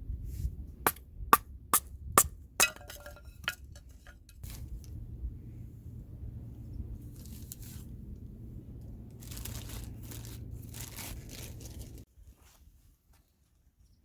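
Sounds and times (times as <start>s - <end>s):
steady low rumble: 0.0s - 12.1s
crinkling tearing handling noise: 9.1s - 12.1s.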